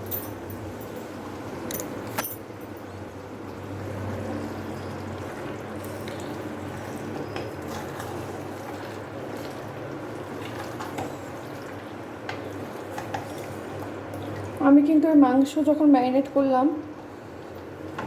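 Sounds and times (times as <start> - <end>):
low steady hum: 0.0 - 2.8.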